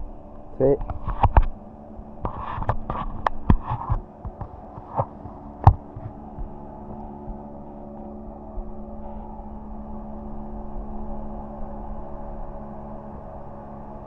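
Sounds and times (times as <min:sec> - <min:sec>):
steady low hum: 0:00.0 - 0:14.0
sharp clicks and knocks: 0:00.8 - 0:01.5, 0:02.2 - 0:07.4.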